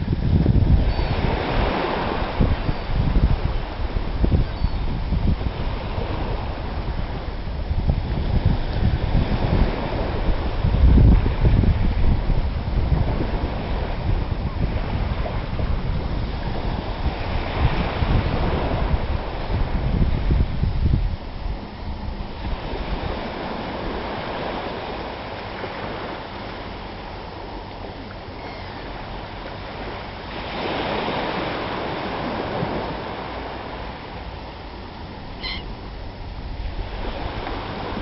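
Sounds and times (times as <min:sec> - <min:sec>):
sea surf washing on beach: 0:00.0 - 0:38.0
wind buffeting microphone: 0:00.0 - 0:38.0
brief high-pitched call: 0:35.4 - 0:35.7.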